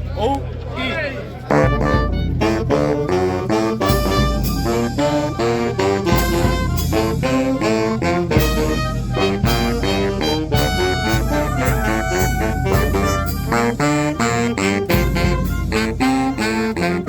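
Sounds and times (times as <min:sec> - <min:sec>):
strong bass: 0:01.4 - 0:17.0
brass melody: 0:01.5 - 0:17.0
drum strikes: 0:05.8 - 0:16.2.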